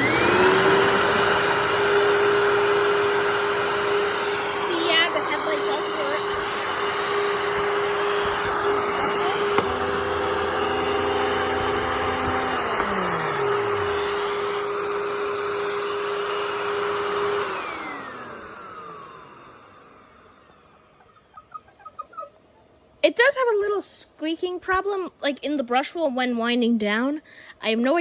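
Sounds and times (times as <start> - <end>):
vacuum cleaner motor running: 0.0 - 21.6.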